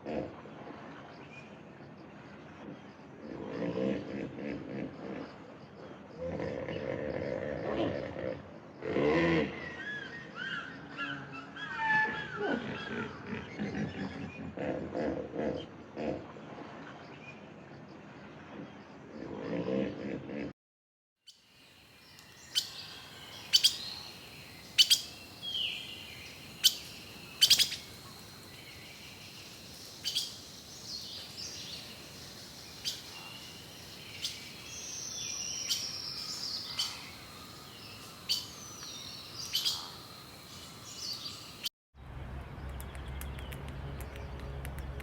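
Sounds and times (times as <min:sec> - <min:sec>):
birds chirping: 0:21.3 - 0:41.7.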